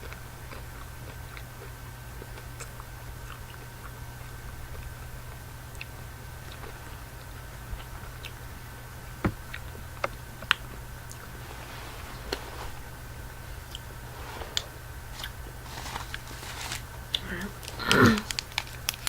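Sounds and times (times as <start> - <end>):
low background hum: 0.0 - 19.0
chewing candy crunches: 14.6 - 19.0.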